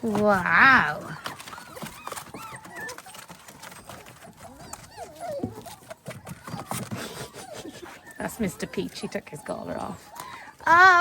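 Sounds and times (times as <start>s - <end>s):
paws scratching and tapping: 0.0s - 11.0s
puppies whimpering: 0.0s - 11.0s.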